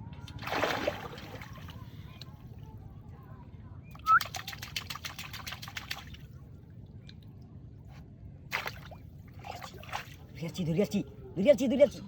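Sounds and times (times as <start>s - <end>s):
water splash: 0.4s - 1.8s.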